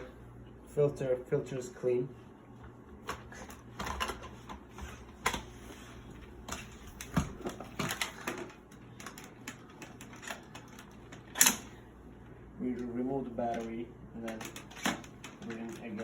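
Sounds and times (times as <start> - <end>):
plastic parts clicking and snapping: 13.5 - 16.0.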